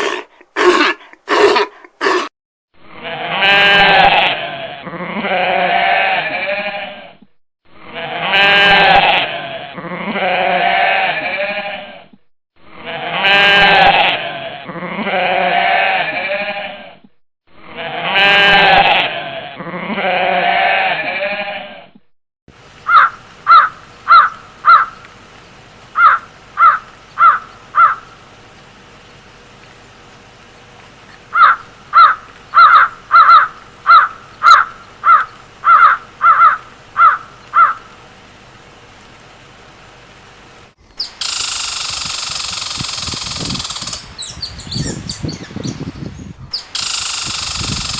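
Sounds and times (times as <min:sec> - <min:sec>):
long wavering bleats: 0:02.8 - 0:07.2, 0:07.8 - 0:17.0, 0:17.6 - 0:21.9
short sharp calls: 0:40.8 - 0:47.9.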